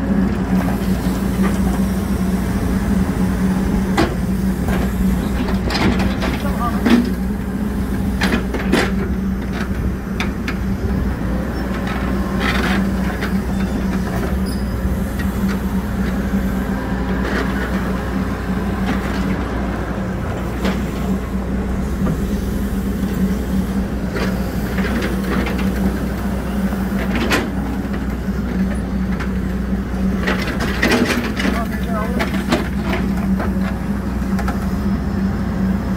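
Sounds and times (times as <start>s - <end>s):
backhoe diesel engine running: 0.0s - 35.9s
knocks and clanks of working gear: 8.2s - 10.6s, 30.2s - 33.8s.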